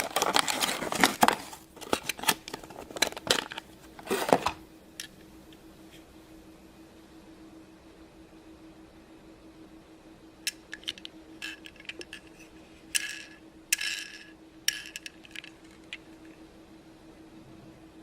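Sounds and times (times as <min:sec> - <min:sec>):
faint steady hum: 0:00.0 - 0:18.0
toy car clicking and clattering: 0:10.5 - 0:12.4, 0:13.0 - 0:16.1.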